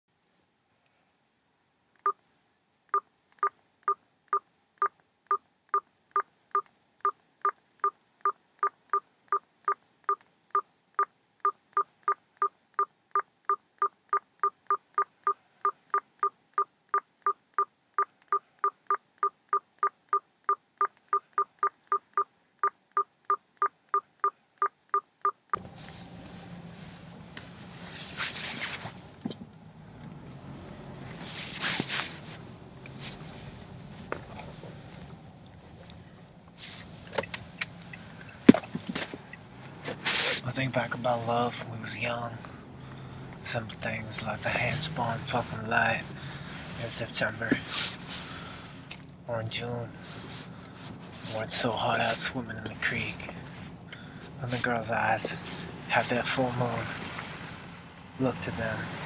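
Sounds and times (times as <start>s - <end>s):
short electronic beeps: 5.7s - 25.6s
rustling rumbling background noise: 25.6s - 59.0s.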